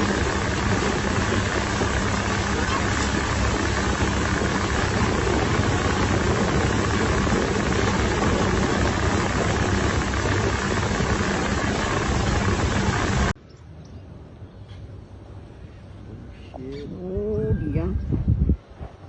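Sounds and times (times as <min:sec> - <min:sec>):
boat engine running: 0:00.0 - 0:13.4.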